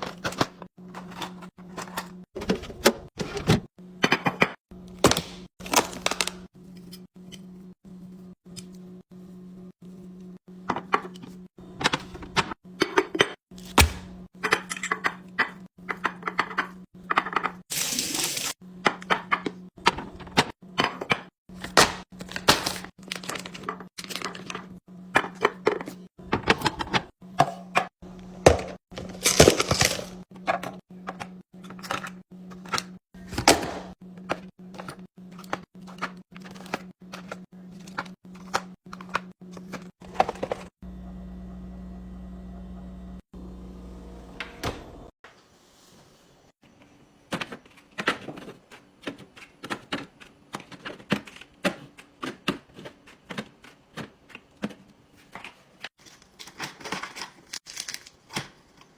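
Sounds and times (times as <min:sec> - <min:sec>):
packaging rustling: 0:22.2 - 0:24.5, 0:56.0 - 0:58.9
low hum: 0:40.1 - 0:45.1.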